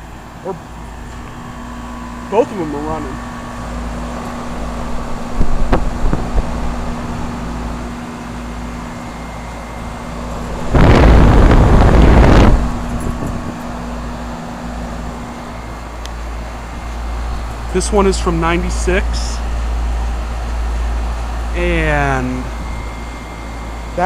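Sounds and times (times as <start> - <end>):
compressor hum: 0.0 - 24.0
condenser fan running: 0.0 - 24.0
loud rushing noise: 10.5 - 13.6.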